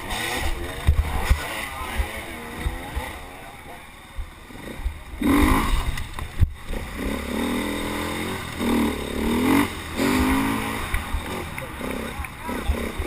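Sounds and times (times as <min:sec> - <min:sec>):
racing engine accelerating: 0:06.7 - 0:13.0.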